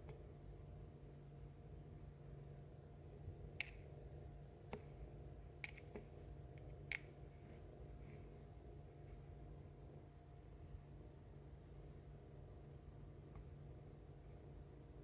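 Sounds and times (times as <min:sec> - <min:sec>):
faint sharp clicks: 0:03.6 - 0:03.9, 0:05.6 - 0:07.1.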